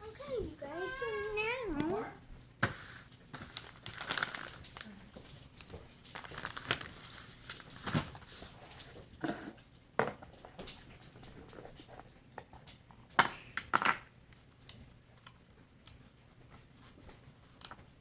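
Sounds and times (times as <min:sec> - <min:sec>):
rustling: 0:02.6 - 0:09.5.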